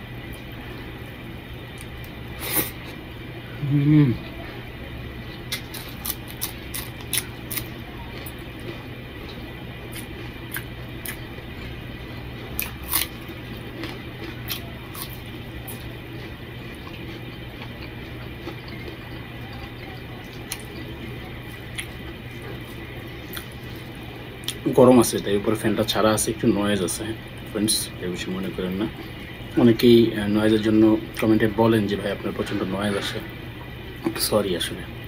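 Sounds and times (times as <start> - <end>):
ceiling fan humming: 0.0 - 35.0
person chewing wetly: 5.3 - 24.6.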